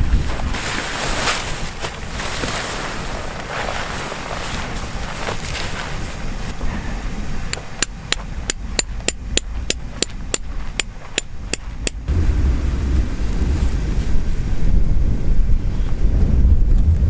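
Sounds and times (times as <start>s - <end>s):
low wind rumble on microphone: 0.0s - 17.0s.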